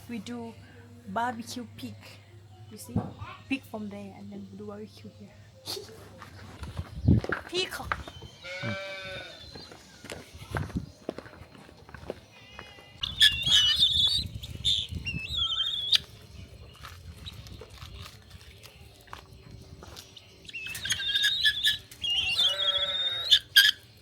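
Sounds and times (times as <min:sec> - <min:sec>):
high wavering animal cries: 0:12.5 - 0:16.0, 0:20.5 - 0:23.8.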